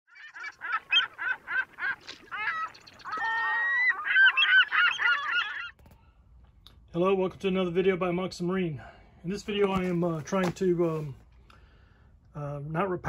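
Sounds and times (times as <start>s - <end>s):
birds honking: 0.1s - 5.8s.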